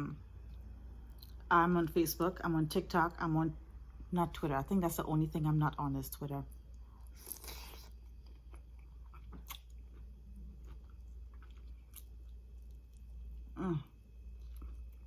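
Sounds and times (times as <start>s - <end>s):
person chewing food: 6.7s - 15.0s.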